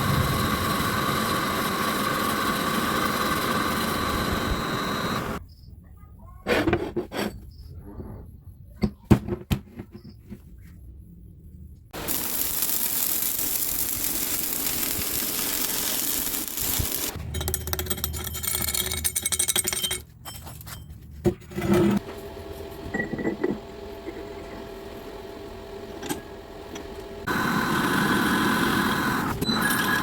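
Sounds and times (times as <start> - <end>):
metalworking power tool running: 0.0 - 5.4, 12.0 - 17.2, 21.9 - 30.0
steady motor hum: 0.0 - 5.4, 22.0 - 30.0
metal clinks and knocks: 17.2 - 21.2.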